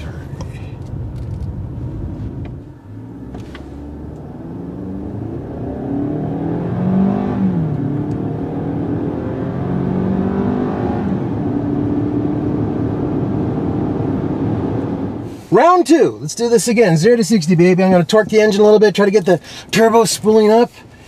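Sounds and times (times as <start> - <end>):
car engine accelerating hard: 0.0 - 15.3.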